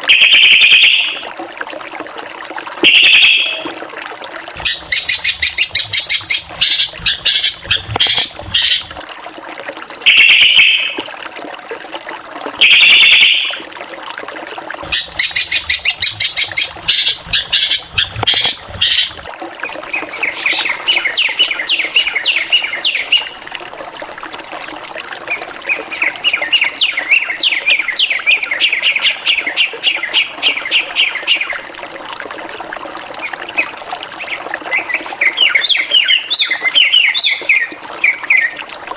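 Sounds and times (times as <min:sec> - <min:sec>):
bird harsh squawks: 0:02.8 - 0:03.6, 0:04.6 - 0:08.9, 0:14.9 - 0:19.2, 0:20.1 - 0:23.3
bird singing varied song: 0:04.6 - 0:08.9, 0:14.9 - 0:19.2, 0:19.9 - 0:23.4, 0:34.2 - 0:38.6.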